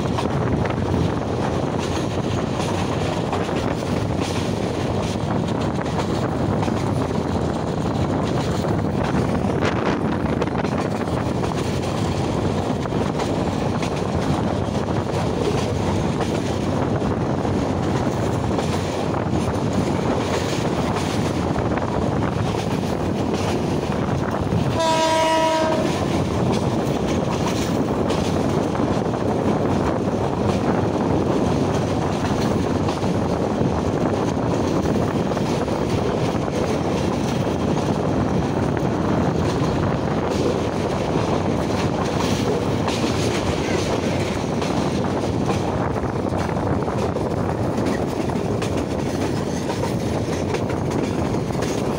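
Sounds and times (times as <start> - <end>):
train wheels rumbling on rails: 0.0 - 51.9
train horn blast: 24.7 - 26.1.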